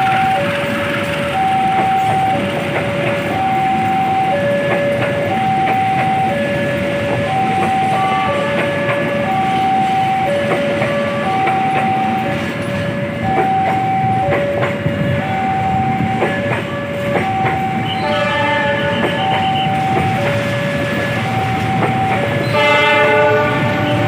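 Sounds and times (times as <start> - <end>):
passing train rumble: 0.0 - 24.0
level crossing two-note alarm: 1.3 - 12.4.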